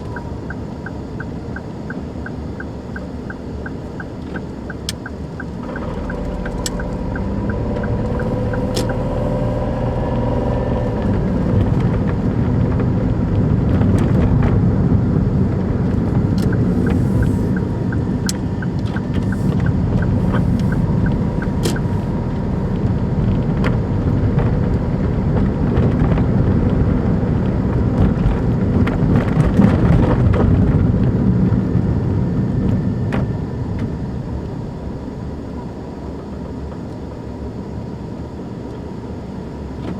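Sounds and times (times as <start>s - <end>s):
turn signal relay ticking: 0.0s - 9.9s, 15.8s - 22.9s
car engine and road noise: 0.0s - 39.9s.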